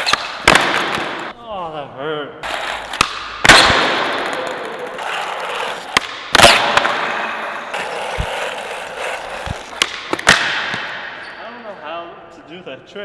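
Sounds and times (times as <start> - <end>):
skateboard bearings scraping ground: 0.0 - 1.3, 2.4 - 11.0
skateboard impact: 0.0 - 1.4, 2.4 - 11.3.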